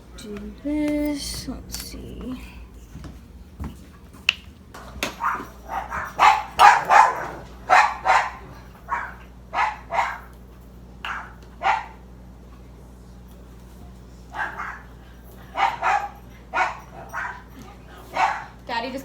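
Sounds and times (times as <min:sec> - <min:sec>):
dogs barking: 0:04.2 - 0:12.2, 0:14.2 - 0:19.0.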